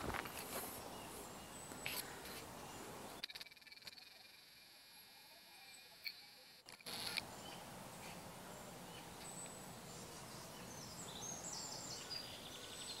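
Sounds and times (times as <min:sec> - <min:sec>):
small birds chirping: 0:00.1 - 0:13.0
steady background hiss: 0:04.1 - 0:13.0.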